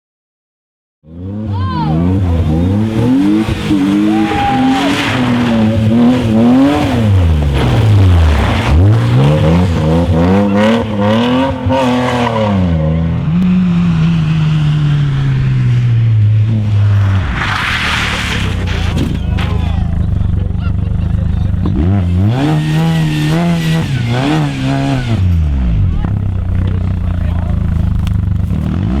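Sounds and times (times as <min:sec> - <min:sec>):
rally car engine revving: 0:01.1 - 0:29.0
tyre squeal: 0:01.8 - 0:11.0, 0:17.1 - 0:25.2.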